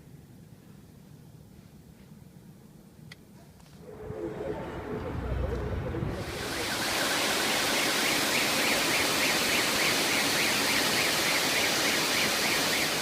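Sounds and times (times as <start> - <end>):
flowing water rushing: 6.1 - 13.0.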